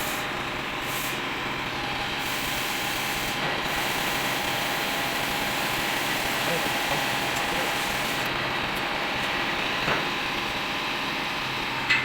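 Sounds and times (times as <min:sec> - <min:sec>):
drilling machine grinding: 0:02.2 - 0:08.3.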